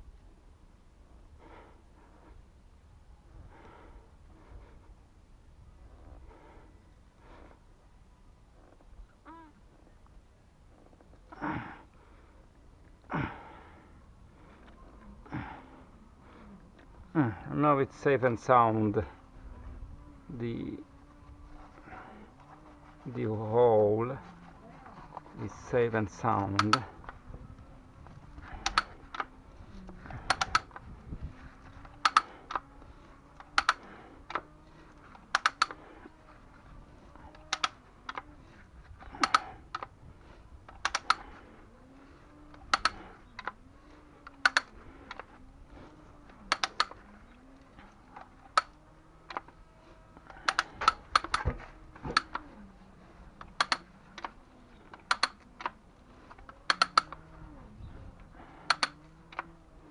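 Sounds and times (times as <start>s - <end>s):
sharp clicks: 25.1s - 36.2s, 37.1s - 38.4s, 39.0s - 39.9s, 40.6s - 41.6s, 42.4s - 49.6s, 50.2s - 52.6s, 53.4s - 57.4s, 58.2s - 59.9s.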